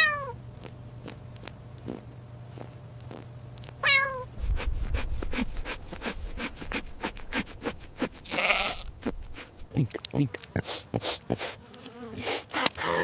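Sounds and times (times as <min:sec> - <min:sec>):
cat meowing: 0:00.0 - 0:00.4, 0:03.8 - 0:04.3
low rumble: 0:04.3 - 0:08.0.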